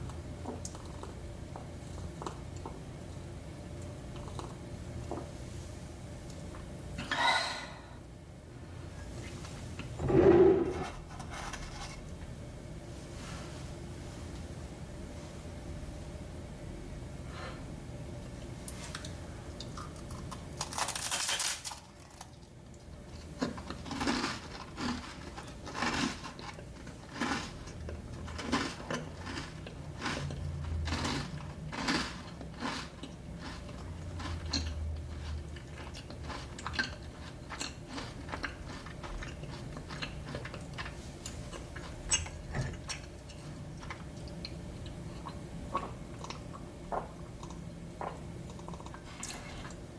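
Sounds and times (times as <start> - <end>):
chewing and mouth sounds: 4.1 - 4.6, 22.2 - 49.8.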